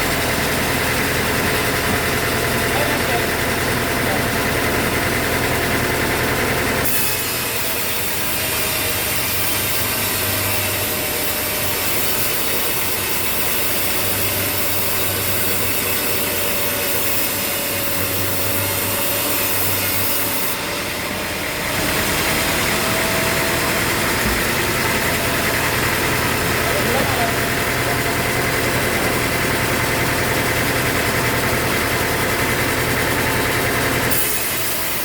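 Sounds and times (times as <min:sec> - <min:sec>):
saw cutting wood: 0:00.0 - 0:35.0
engine humming: 0:20.8 - 0:31.1.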